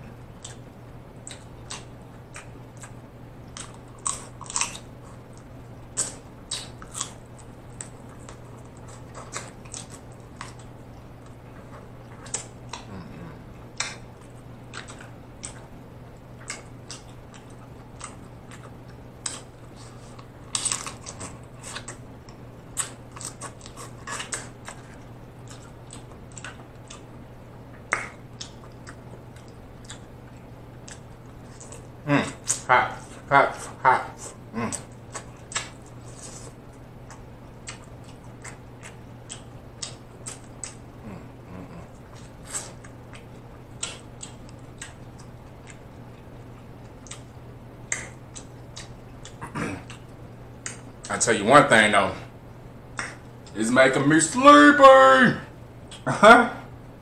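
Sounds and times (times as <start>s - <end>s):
faint low hum: 0.0s - 57.0s
chewing lip and tongue smacks: 0.4s - 27.1s, 27.7s - 40.9s, 41.6s - 51.1s, 52.9s - 53.6s, 55.8s - 56.1s.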